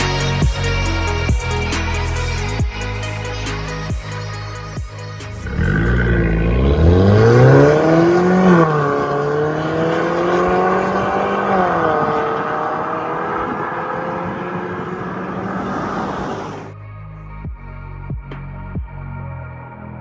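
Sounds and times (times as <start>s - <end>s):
car engine accelerating: 5.3s - 16.9s.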